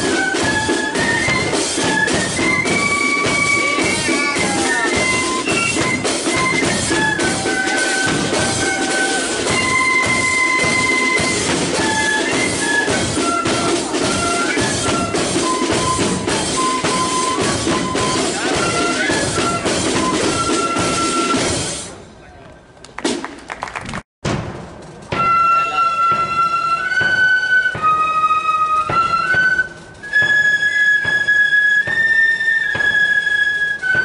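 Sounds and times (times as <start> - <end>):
rapid snare drums: 0.0 - 21.8
flutes playing melody: 0.0 - 22.0, 25.1 - 34.0.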